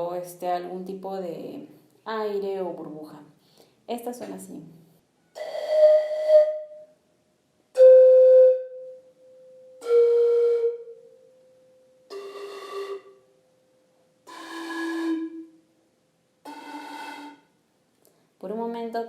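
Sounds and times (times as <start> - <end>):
breathy pan flute notes: 5.2 - 7.0, 7.7 - 13.4, 14.2 - 15.6, 16.4 - 17.6.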